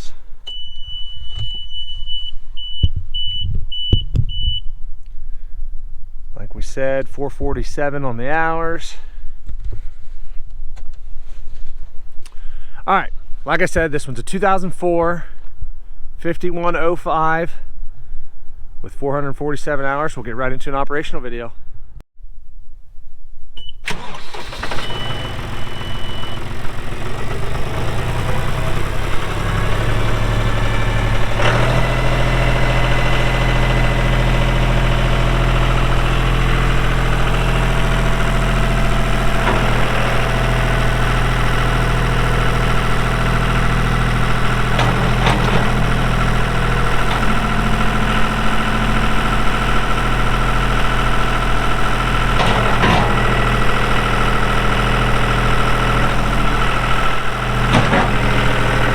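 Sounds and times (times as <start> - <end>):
tractor diesel engine running: 0.0 - 4.6, 23.8 - 58.9
short high beep: 0.5 - 4.8.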